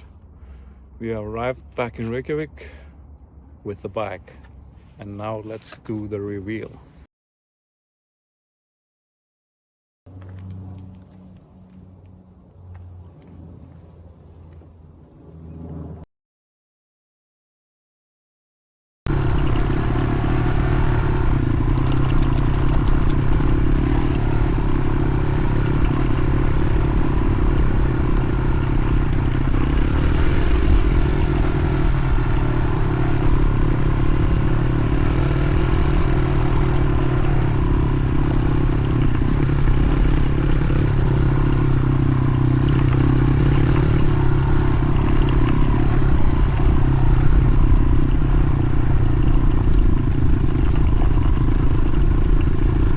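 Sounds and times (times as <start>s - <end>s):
motorcycle engine idling: 19.1s - 52.9s.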